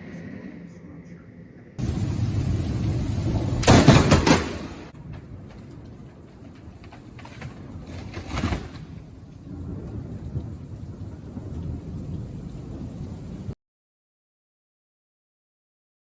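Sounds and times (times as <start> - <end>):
steady rain: 1.8 - 13.6
thunder clap: 1.8 - 13.6
thunder rumbling: 1.8 - 13.6.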